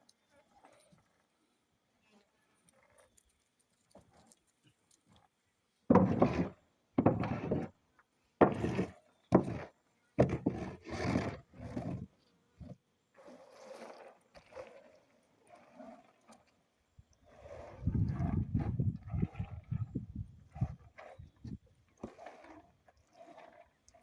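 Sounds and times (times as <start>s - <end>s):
wooden rake scraping beans: 5.9s - 7.8s, 8.4s - 16.6s, 17.2s - 24.0s.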